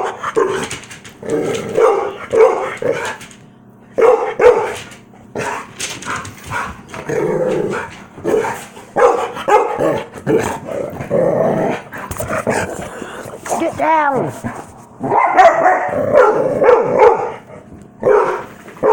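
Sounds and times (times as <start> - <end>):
dogs growling: 0.0 - 3.3, 5.2 - 18.6
dogs barking: 1.7 - 3.2, 3.9 - 6.8, 7.7 - 10.6, 14.5 - 18.9.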